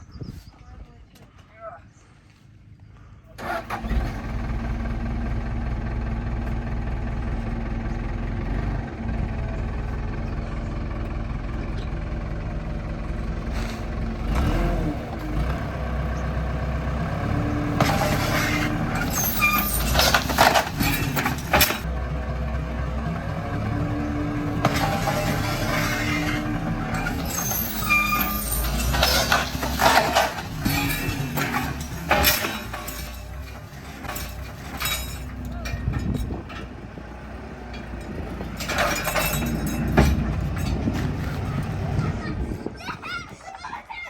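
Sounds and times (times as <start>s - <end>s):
heavy machinery engine running: 3.4s - 42.8s.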